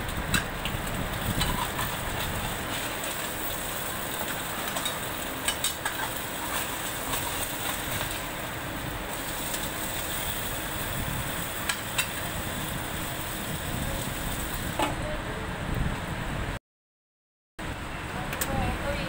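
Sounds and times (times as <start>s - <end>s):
fish sizzling in hot oil: 0.0s - 14.8s.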